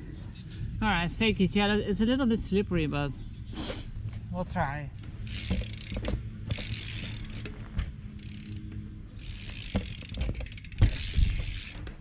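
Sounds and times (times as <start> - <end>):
freewheel ratchet clicking: 5.2 - 7.6, 8.2 - 12.0.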